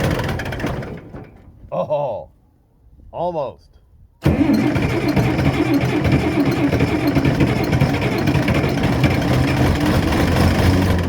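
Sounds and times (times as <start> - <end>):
tractor diesel engine running: 0.0 - 1.4, 4.2 - 11.0.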